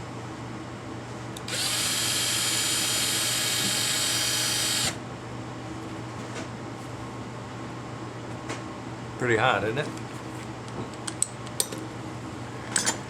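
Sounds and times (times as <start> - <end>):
power drill whirring: 1.4 - 5.0.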